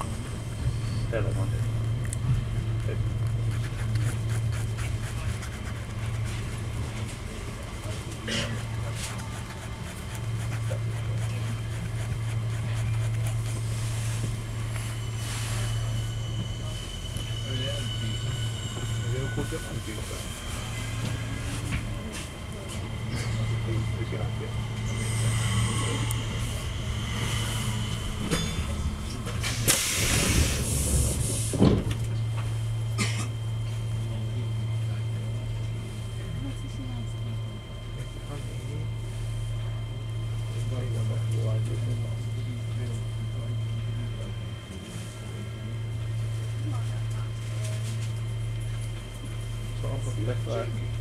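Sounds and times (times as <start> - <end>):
train carriage hum and rumble: 0.0 - 51.0
brief hiss: 29.4 - 31.4.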